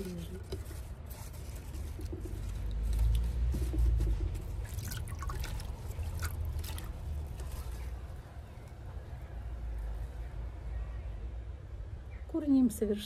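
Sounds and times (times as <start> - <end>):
water splashing and trickling: 0.8 - 8.1.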